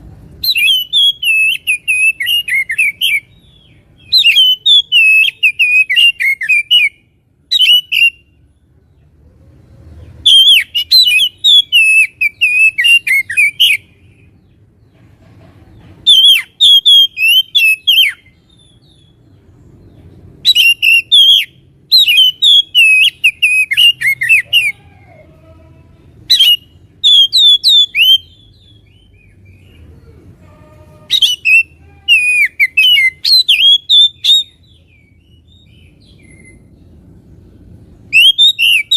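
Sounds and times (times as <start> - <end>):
bird singing whistled notes: 0.4 - 8.3, 10.2 - 14.2, 16.0 - 19.2, 20.4 - 24.8, 26.3 - 29.7, 31.1 - 36.8, 38.0 - 38.9.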